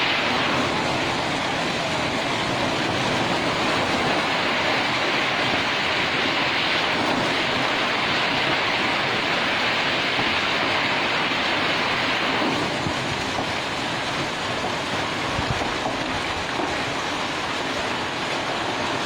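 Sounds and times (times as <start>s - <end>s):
hail falling heavily: 0.0s - 19.0s.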